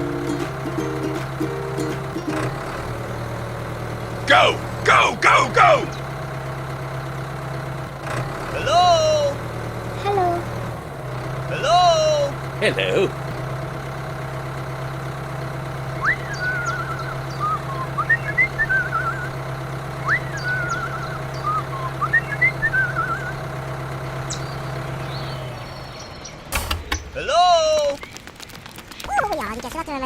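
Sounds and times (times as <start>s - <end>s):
low motor hum: 0.0s - 27.2s
whistled chirping phrase: 16.0s - 19.4s, 20.0s - 23.4s.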